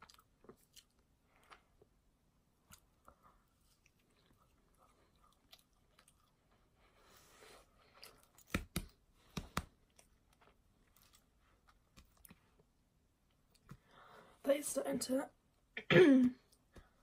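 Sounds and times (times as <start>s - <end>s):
chewing and mouth sounds: 0.0s - 1.9s, 2.6s - 6.7s.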